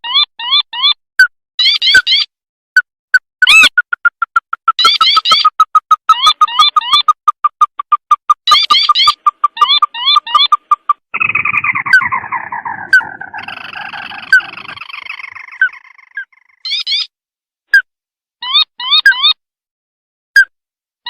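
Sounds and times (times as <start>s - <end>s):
crake calling: 3.5s - 17.0s.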